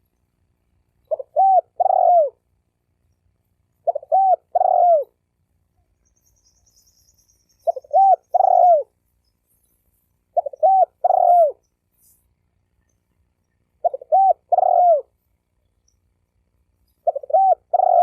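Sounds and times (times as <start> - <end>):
dove cooing: 1.1 - 2.5, 3.8 - 5.2, 7.6 - 9.0, 10.3 - 11.6, 13.8 - 15.2, 17.0 - 18.0.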